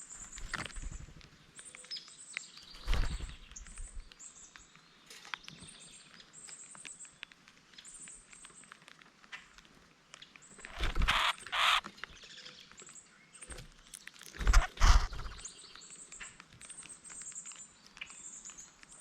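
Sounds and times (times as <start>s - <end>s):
rain pattering and dripping: 0.0s - 10.8s, 15.4s - 19.0s
high bird chirps: 10.6s - 12.6s, 14.4s - 15.9s.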